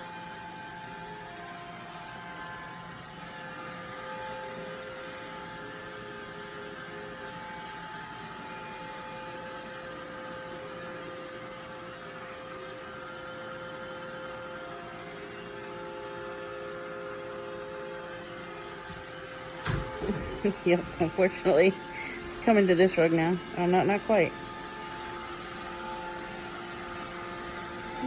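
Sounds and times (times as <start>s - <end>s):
robot vacuum running: 15.0s - 28.0s.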